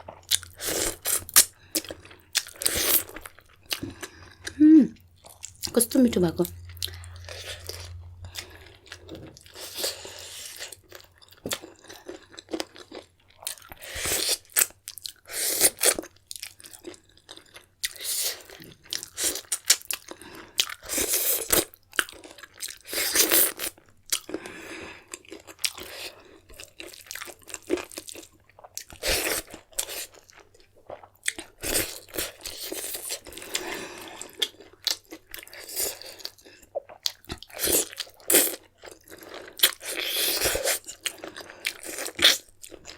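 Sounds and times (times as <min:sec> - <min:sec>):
person chewing crunchy food: 0:00.0 - 0:05.8, 0:06.4 - 0:42.9.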